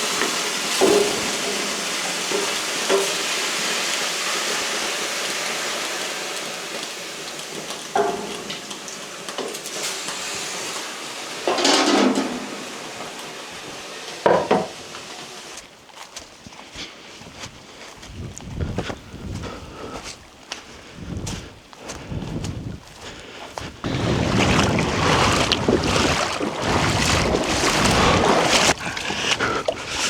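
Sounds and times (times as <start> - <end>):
pots and cutlery clinking: 8.0 - 8.8, 11.5 - 12.8.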